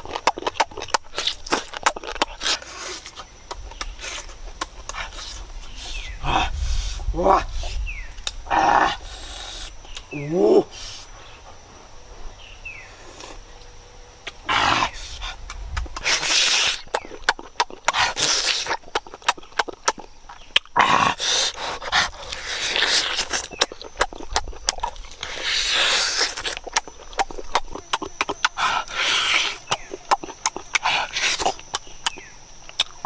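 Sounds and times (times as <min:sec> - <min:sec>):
wet smacking mouth clicks: 0:00.0 - 0:06.0, 0:14.2 - 0:14.4, 0:15.1 - 0:33.0
slurping: 0:14.3 - 0:32.9.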